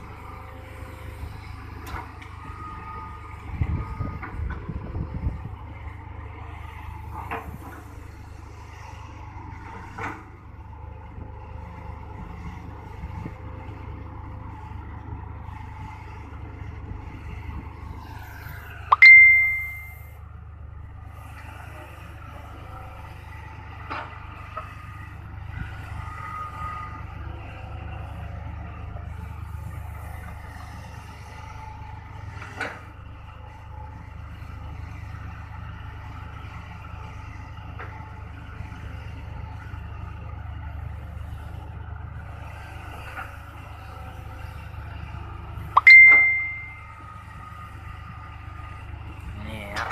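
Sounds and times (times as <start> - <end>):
excavator diesel engine running: 0.0 - 49.9
loud ringing metallic clang: 18.9 - 20.0, 45.8 - 46.8
sharp metal knocks: 45.8 - 46.7.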